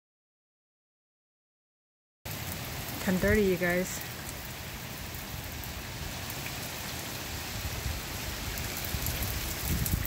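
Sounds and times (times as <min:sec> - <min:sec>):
heavy rain pouring: 0:02.3 - 0:10.0.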